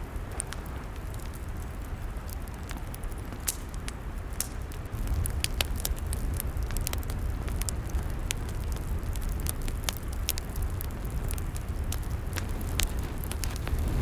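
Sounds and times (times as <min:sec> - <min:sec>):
log fire crackling: 0:00.0 - 0:14.0
low rumble: 0:12.3 - 0:14.0.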